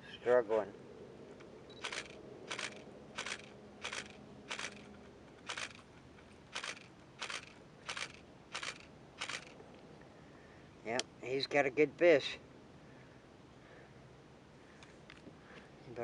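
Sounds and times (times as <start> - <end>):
camera shutter clicks: 1.8 - 5.9, 6.5 - 9.6.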